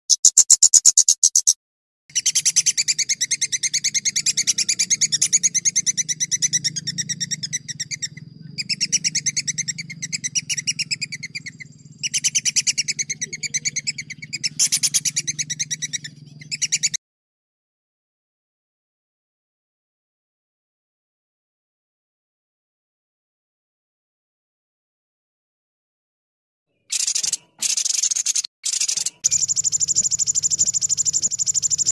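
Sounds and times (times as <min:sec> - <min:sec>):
songbird trilling: 0:00.0 - 0:17.0, 0:26.8 - 0:31.9
faint low hum: 0:02.7 - 0:16.8.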